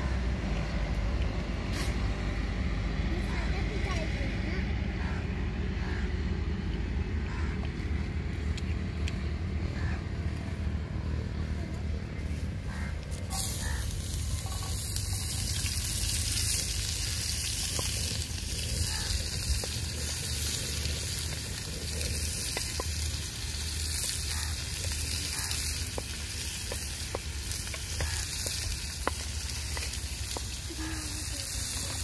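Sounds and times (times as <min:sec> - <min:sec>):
onions sizzling in oil: 0:12.7 - 0:32.0
small pops and crackles: 0:14.8 - 0:32.0.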